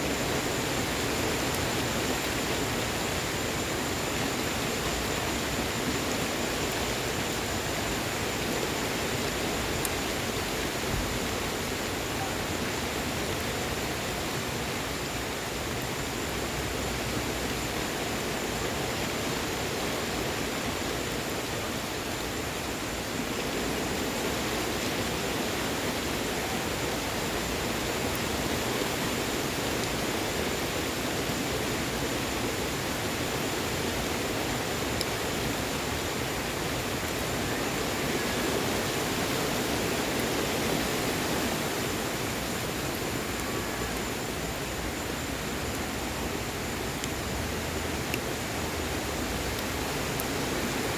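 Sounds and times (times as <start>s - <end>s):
steady rain falling: 0.0s - 50.9s
wood fire crackling: 0.2s - 14.2s.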